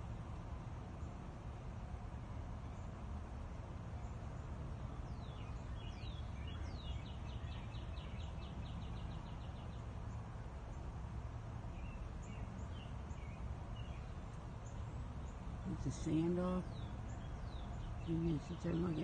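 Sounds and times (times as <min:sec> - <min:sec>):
songbird calling and trilling: 0:04.8 - 0:10.8, 0:11.7 - 0:19.0.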